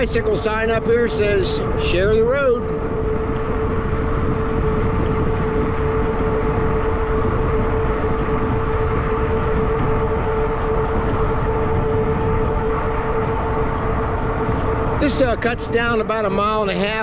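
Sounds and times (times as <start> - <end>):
electric bike motor whine: 0.0 - 17.0
wind rushing over microphone: 0.0 - 17.0.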